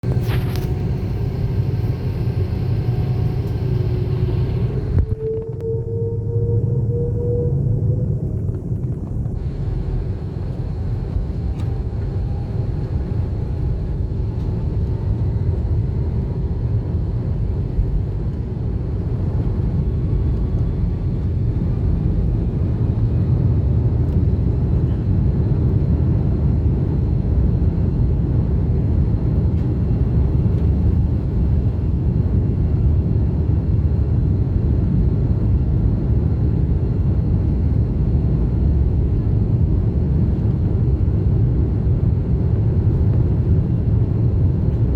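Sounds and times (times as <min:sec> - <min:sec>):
jet engines rumbling: 0:00.0 - 0:44.9
whine rising in pitch: 0:00.1 - 0:14.8.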